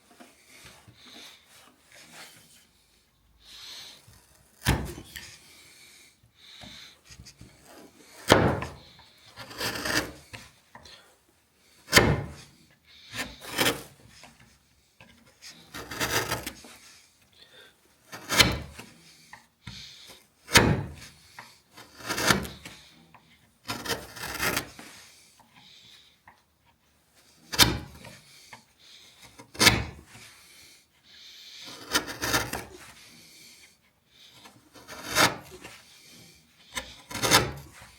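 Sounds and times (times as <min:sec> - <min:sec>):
chisel rasping on wood: 0:07.4 - 0:10.4, 0:13.1 - 0:14.0, 0:15.6 - 0:16.7, 0:18.0 - 0:18.9, 0:20.5 - 0:22.8, 0:23.6 - 0:24.9, 0:27.5 - 0:28.2, 0:29.3 - 0:30.0, 0:31.4 - 0:33.3, 0:34.4 - 0:37.8.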